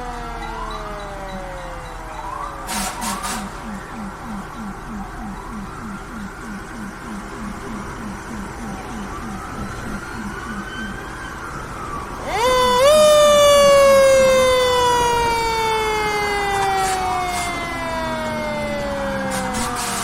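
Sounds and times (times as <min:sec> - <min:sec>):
mechanical siren wailing: 0:00.0 - 0:20.0
quick repeating chirp: 0:02.8 - 0:11.3.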